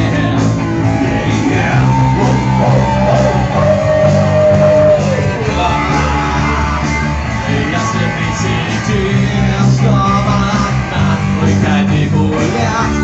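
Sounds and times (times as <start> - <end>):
electric guitar lead line: 0.0 - 13.0
live rock band playing: 0.0 - 13.0.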